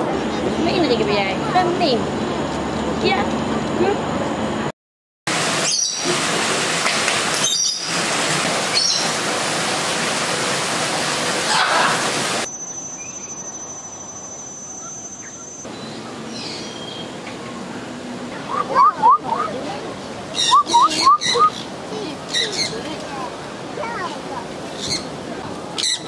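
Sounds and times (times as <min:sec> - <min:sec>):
steady high-pitched whine: 0:12.4 - 0:15.8.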